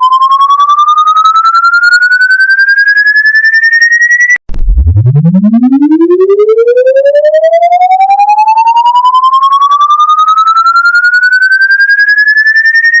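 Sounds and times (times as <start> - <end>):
pulsing electronic tone rising: 4.5 - 12.1.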